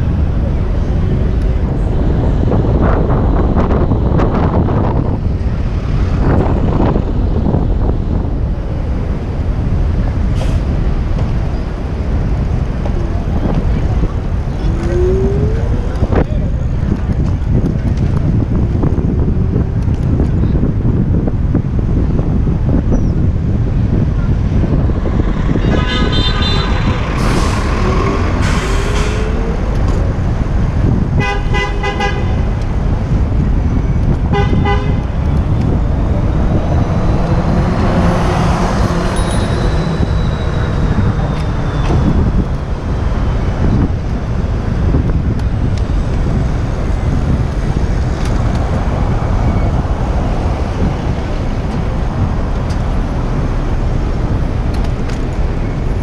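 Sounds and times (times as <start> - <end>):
street traffic: 0.0 - 56.0
wind rumble on microphone: 0.0 - 56.0
vehicle horn honking: 25.6 - 27.1, 31.2 - 32.5, 34.3 - 35.0.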